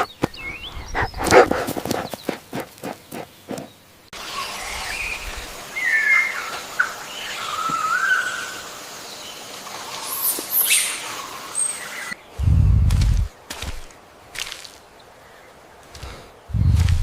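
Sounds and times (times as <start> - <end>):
bird chirping: 0.0 - 13.3
low rumble: 12.4 - 13.3, 16.5 - 17.0.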